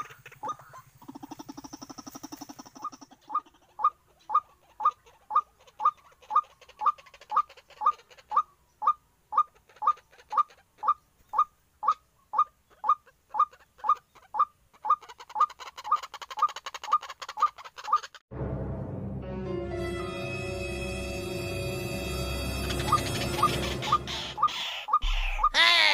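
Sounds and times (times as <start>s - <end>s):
crackly hiss: 0.0s - 3.2s
waterhen calling: 0.0s - 18.2s, 22.6s - 25.9s
music: 18.3s - 24.4s.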